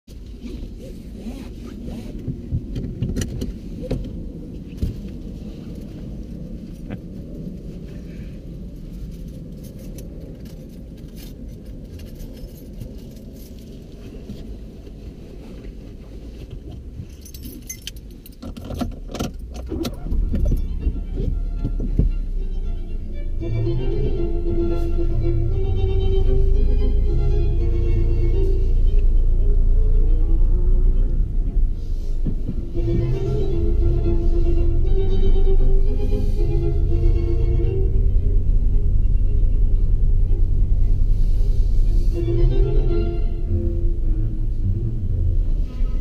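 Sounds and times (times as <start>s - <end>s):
car engine idling: 19.0s - 46.0s.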